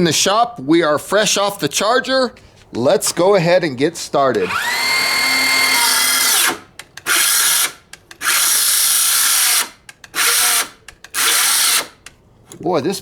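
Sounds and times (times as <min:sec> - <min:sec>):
circular saw cutting wood: 0:04.4 - 0:12.1.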